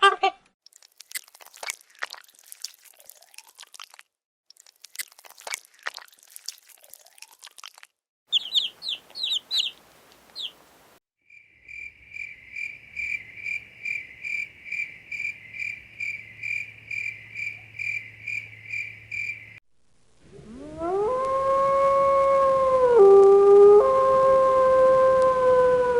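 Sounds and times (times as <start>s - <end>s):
quick animal chirps: 8.3s - 10.6s
long rising howl: 20.2s - 25.9s.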